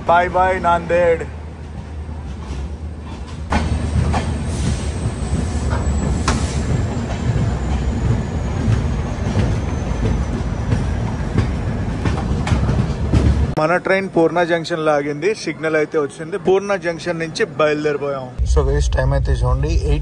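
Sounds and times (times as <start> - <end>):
train wheels rumbling on track: 0.0 - 14.9
wheels clicking over rail joints: 1.6 - 13.6.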